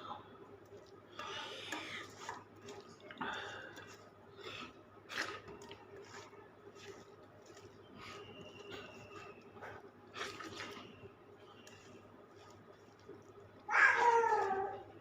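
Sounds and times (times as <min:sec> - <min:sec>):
person slurping and chewing: 0:01.4 - 0:11.1.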